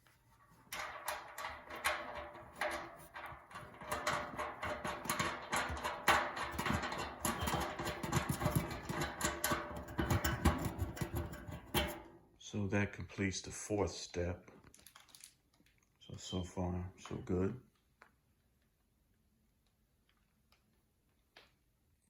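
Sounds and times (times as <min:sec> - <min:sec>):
metal clicking and knocking: 0:00.7 - 0:12.2.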